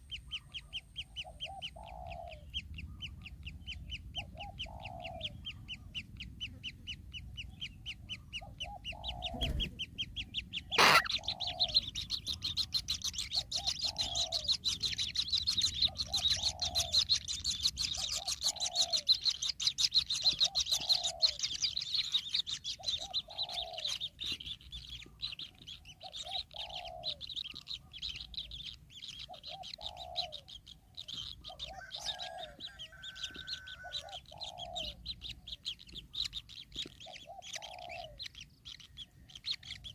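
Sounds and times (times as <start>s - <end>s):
high ticking bird chatter: 0.0s - 39.9s
low short bird call: 10.7s - 11.8s.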